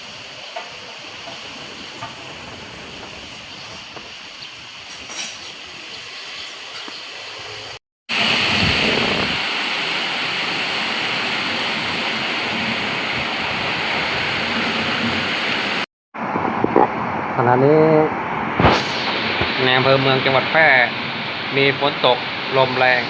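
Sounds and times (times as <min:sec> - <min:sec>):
heavy rain pouring: 0:00.0 - 0:04.9, 0:07.2 - 0:15.9, 0:18.6 - 0:23.0.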